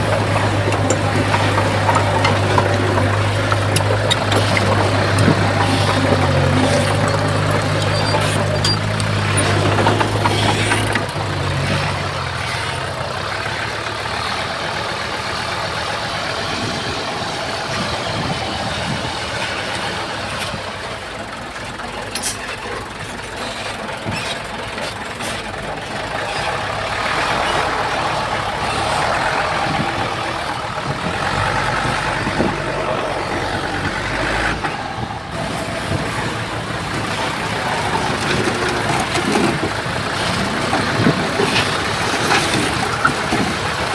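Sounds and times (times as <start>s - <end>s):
heavy diesel engines running: 0.0s - 43.9s.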